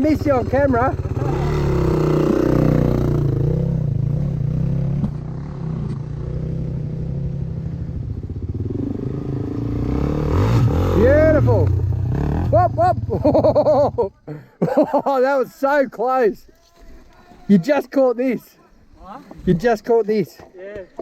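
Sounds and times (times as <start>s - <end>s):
dirt bike engine: 0.0s - 15.0s.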